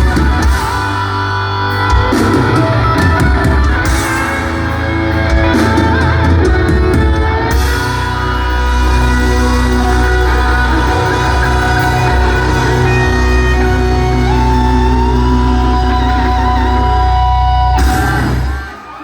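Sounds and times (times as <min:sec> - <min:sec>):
electric guitar lead: 0:00.0 - 0:19.0
live heavy metal band: 0:00.0 - 0:19.0.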